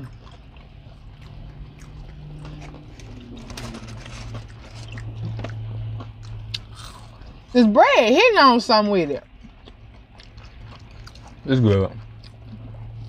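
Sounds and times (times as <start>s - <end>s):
people chewing: 0.0s - 7.6s, 8.9s - 13.0s
low steady hum: 0.0s - 13.0s.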